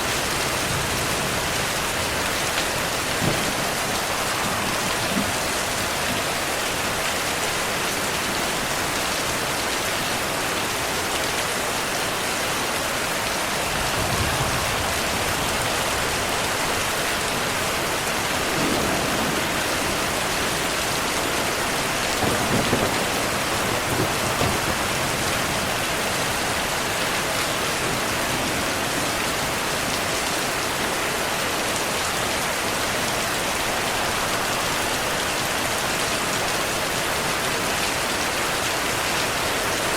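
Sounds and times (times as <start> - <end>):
heavy rainfall hissing: 0.0 - 39.9
low thunder rumbles: 0.1 - 7.0, 13.6 - 30.1.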